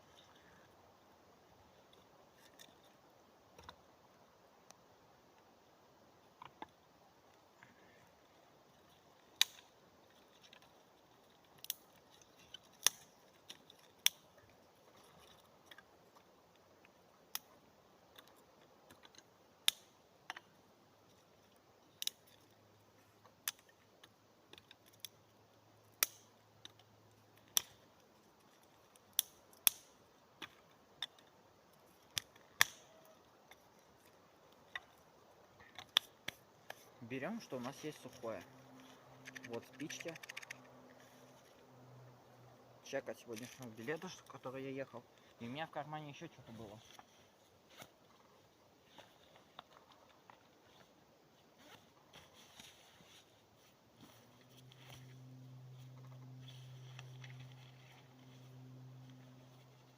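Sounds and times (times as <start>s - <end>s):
sticks snapping and knocking together: 9.4s - 9.7s, 11.4s - 14.3s, 18.1s - 20.5s, 21.9s - 22.5s, 23.3s - 25.2s, 25.9s - 27.8s, 28.9s - 31.3s, 32.1s - 33.7s, 35.7s - 36.9s, 39.2s - 40.7s.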